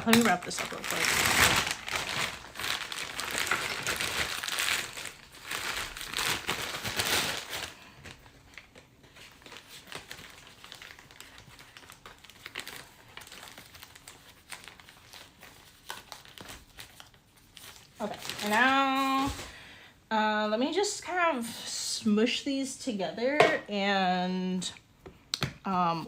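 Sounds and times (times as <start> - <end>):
plastic sheeting crinkling: 0.0 - 19.5.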